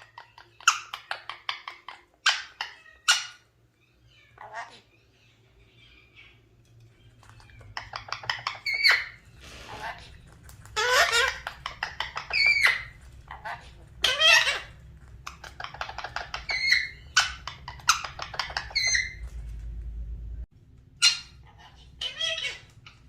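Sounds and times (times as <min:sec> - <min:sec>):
parrot squawks: 0:00.0 - 0:06.4, 0:07.2 - 0:19.2, 0:20.9 - 0:23.0
parrot clicking chatter: 0:07.2 - 0:09.2, 0:10.1 - 0:19.2.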